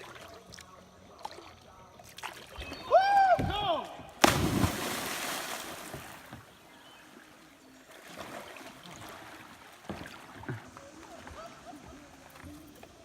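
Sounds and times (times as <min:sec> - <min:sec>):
faint lapping water: 0:00.0 - 0:13.0
person splashing into water: 0:04.2 - 0:06.3.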